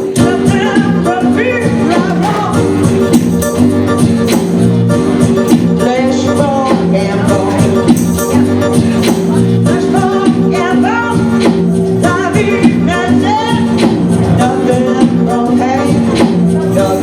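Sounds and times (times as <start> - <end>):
latin band music: 1.0 - 13.3.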